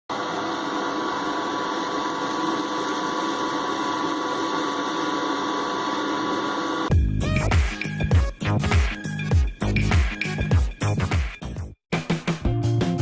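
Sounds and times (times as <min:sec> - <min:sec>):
vacuum cleaner motor whining: 0:00.1 - 0:06.9.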